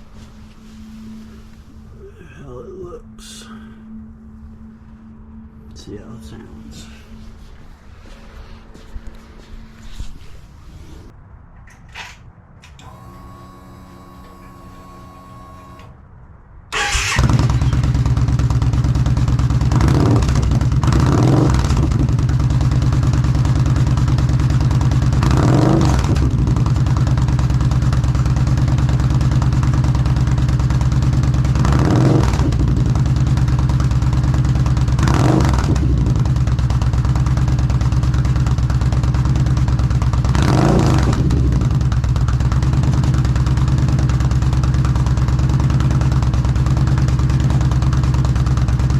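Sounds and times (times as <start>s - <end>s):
motorcycle engine idling: 16.8s - 48.9s.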